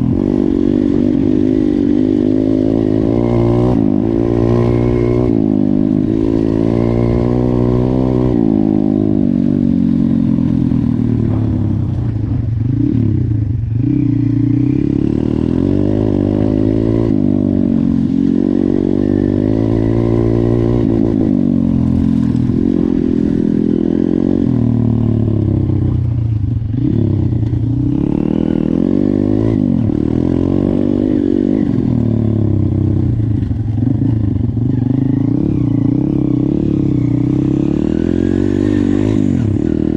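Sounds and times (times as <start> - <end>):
pit bike engine revving: 26.7 - 39.9.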